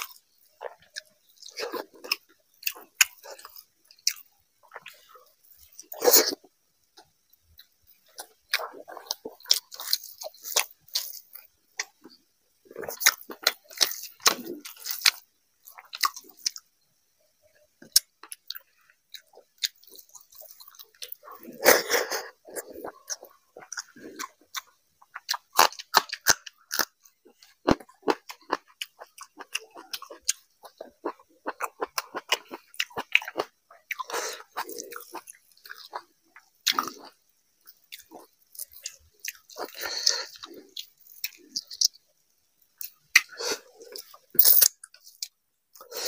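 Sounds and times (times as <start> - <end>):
close chewing with mouth smacks: 0.0 - 6.4, 22.4 - 42.0.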